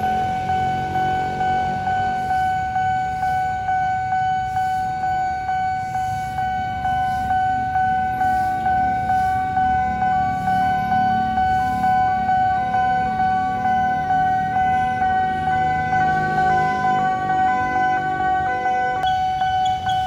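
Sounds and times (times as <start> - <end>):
higher stepped tone pattern: 0.0 - 20.0
level crossing bell ringing: 8.8 - 20.0.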